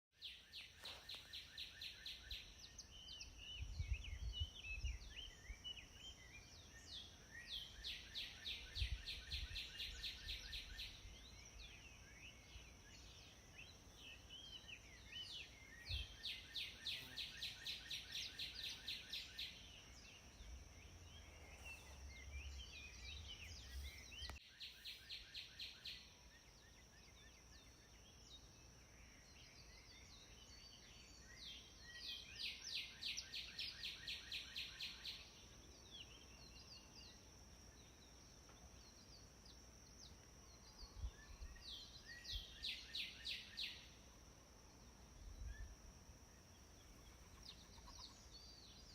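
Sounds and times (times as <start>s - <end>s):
songbirds singing and trilling: 0.2s - 48.9s
high-pitched hiss: 11.8s - 25.6s.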